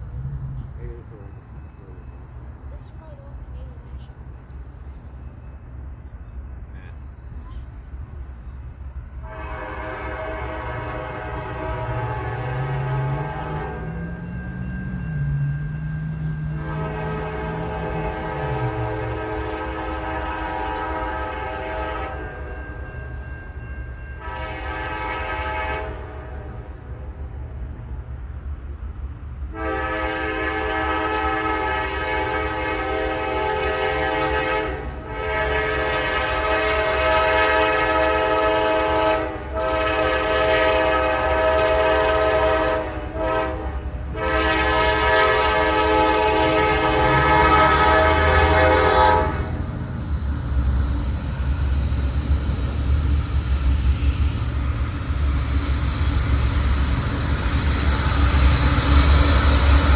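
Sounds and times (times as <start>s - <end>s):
locomotive rumbling past: 0.0s - 59.9s
locomotive air horn blasts: 9.2s - 23.0s, 24.2s - 26.8s, 29.5s - 49.8s.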